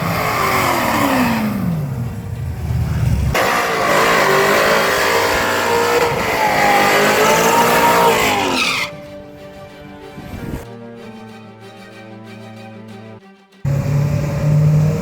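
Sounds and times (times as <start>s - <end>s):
car engine: 0.0s - 8.9s, 13.7s - 15.0s
tyres squealing: 5.4s - 9.1s
background music: 6.0s - 13.7s.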